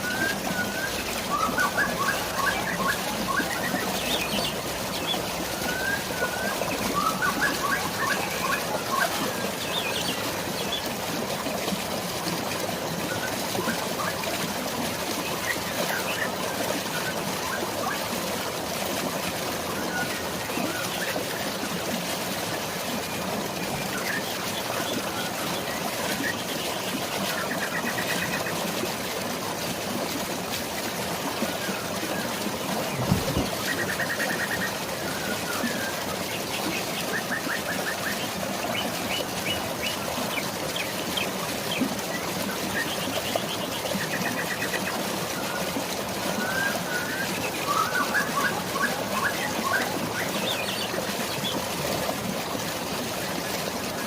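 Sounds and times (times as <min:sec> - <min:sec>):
birds singing: 0:00.0 - 0:10.9, 0:31.5 - 0:51.7
falling water and rain: 0:00.0 - 0:54.0.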